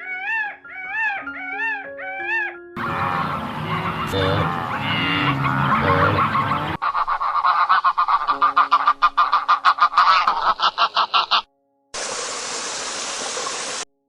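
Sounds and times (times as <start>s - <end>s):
bird rapid repeated calls: 0.0s - 11.5s
steady hiss: 12.0s - 13.8s.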